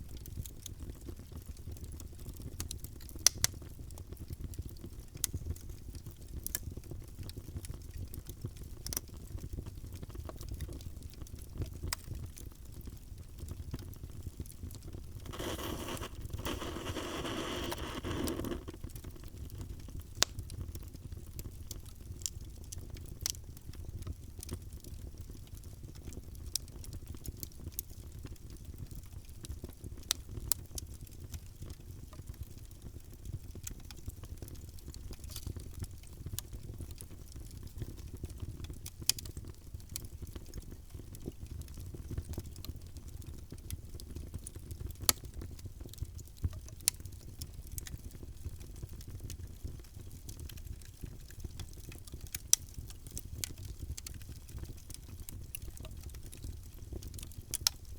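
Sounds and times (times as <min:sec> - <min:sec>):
fire crackling and popping: 0:00.0 - 0:57.9
fire hissing: 0:15.2 - 0:18.8
wood fire rumbling: 0:15.2 - 0:18.8.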